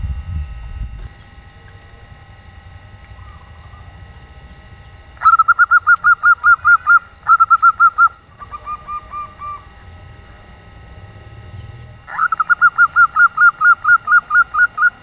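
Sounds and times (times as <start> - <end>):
dove cooing: 3.1 - 10.0, 11.0 - 15.0.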